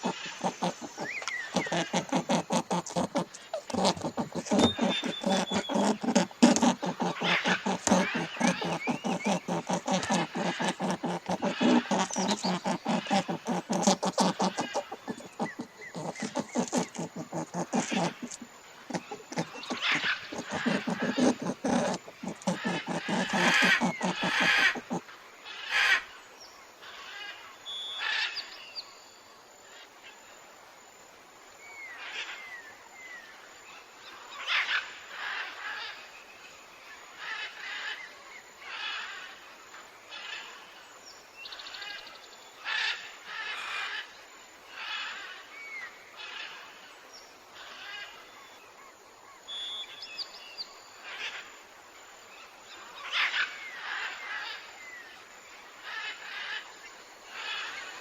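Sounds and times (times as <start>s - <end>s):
animal calls: 0.0s - 25.0s
small chirps: 0.0s - 25.0s.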